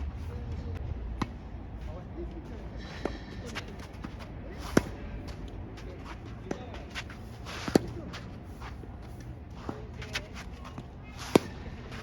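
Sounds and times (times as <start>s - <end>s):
racket hitting tennis ball: 2.9s - 12.0s
shoe scuffs: 3.0s - 12.0s
tennis ball bouncing: 3.0s - 12.0s.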